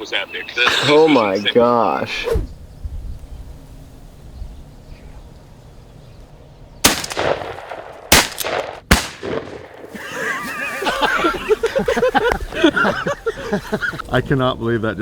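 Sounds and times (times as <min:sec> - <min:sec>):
shotgun shots: 0:06.8 - 0:09.9.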